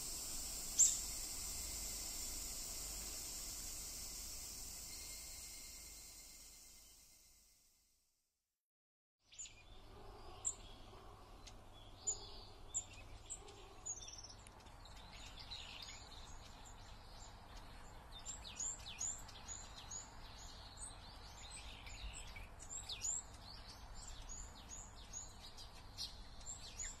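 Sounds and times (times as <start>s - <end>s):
low background hum: 0.0s - 7.0s
small birds chirping: 0.0s - 7.0s, 9.3s - 27.0s.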